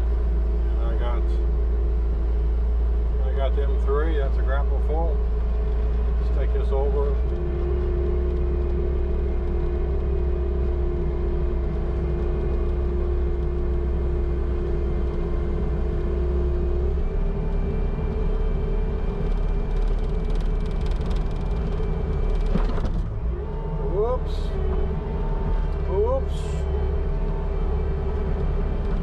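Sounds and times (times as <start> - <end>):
diesel engine running under load: 0.0 - 29.0
steady whine: 0.0 - 29.0
knocks and clatters: 19.1 - 23.2.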